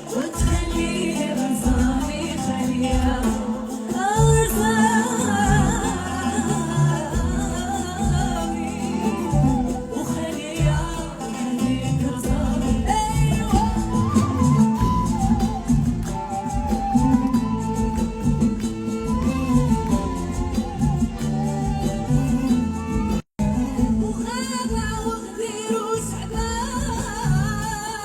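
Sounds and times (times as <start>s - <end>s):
woman singing: 0.0s - 28.0s.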